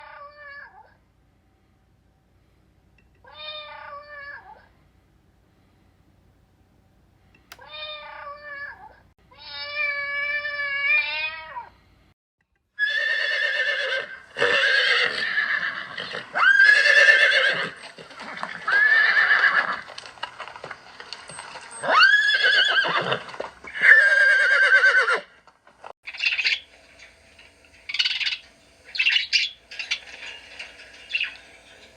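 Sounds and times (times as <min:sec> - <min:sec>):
farm animal calls: 0:26.1 - 0:31.9.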